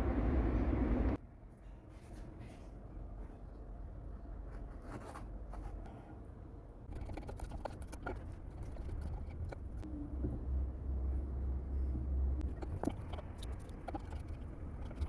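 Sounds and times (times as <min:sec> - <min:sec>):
low steady rumble: 0:00.0 - 0:01.6, 0:05.5 - 0:15.0.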